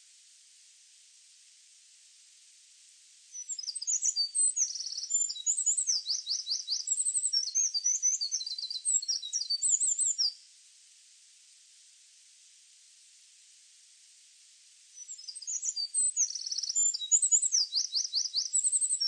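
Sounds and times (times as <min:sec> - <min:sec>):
faint steady hiss: 0:00.0 - 0:19.0
songbird singing: 0:03.3 - 0:10.5, 0:14.9 - 0:19.0.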